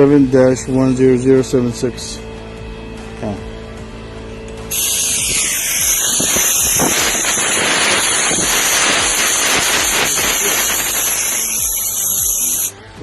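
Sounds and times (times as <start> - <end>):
crackling sputters: 4.7 - 12.7
pressurised jet hissing: 4.7 - 12.7.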